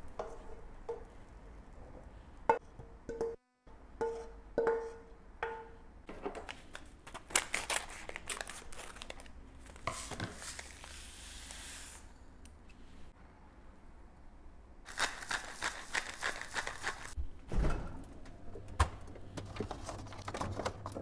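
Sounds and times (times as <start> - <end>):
wrapping crinkling and tearing: 6.5 - 11.6, 14.9 - 17.2.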